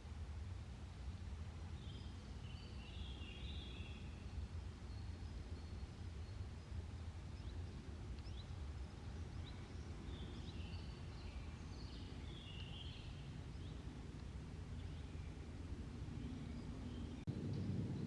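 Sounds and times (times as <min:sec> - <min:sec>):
small birds chirping: 0:01.8 - 0:17.3
low rumble: 0:13.6 - 0:18.0.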